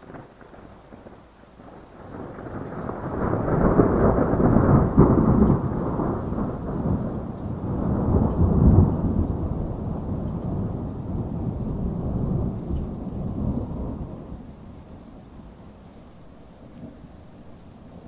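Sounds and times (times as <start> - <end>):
thunder rolling: 0.0 - 15.5
steady rainfall: 0.0 - 18.0.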